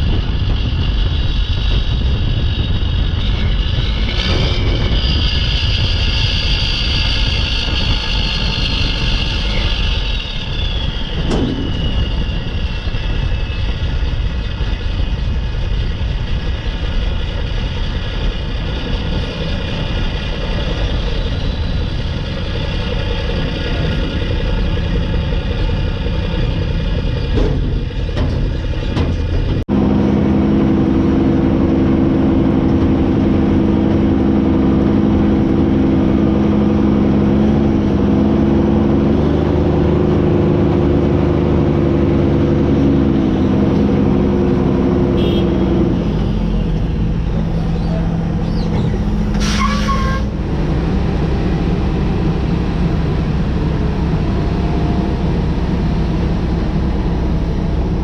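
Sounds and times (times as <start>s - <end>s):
high turbo whistle: 0.0s - 15.5s, 44.0s - 58.0s
diesel truck engine running: 0.0s - 58.0s.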